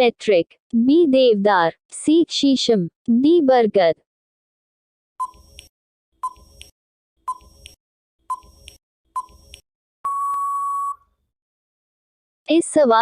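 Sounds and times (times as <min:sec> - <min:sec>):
short timer beeps: 0:05.2 - 0:06.7, 0:07.3 - 0:11.0
long steady beep: 0:10.0 - 0:11.0.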